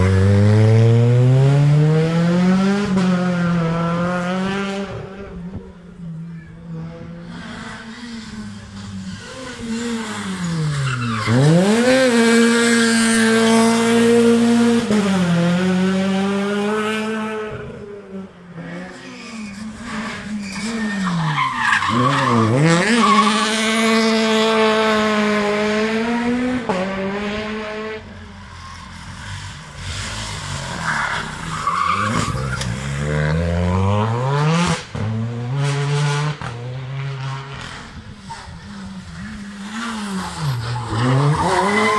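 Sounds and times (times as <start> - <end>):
rally car engines revving: 0.0 - 41.9
tyre squeal: 7.9 - 11.8, 19.0 - 23.4.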